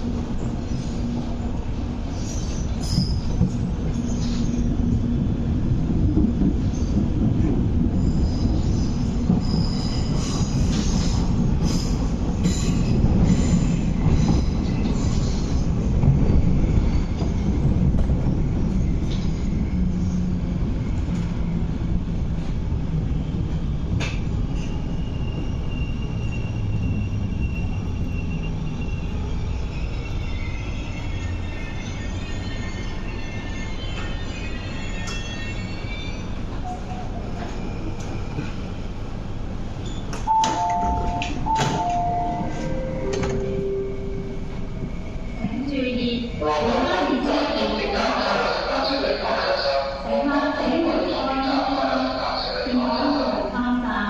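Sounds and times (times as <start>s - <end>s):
train wheels rumbling on rail: 0.0s - 54.0s
rail-joint clicks: 23.9s - 24.7s, 39.8s - 43.6s.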